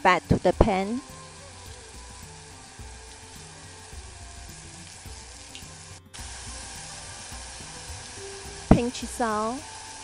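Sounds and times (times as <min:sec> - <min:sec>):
meat sizzling in a frying pan: 0:00.0 - 0:10.0.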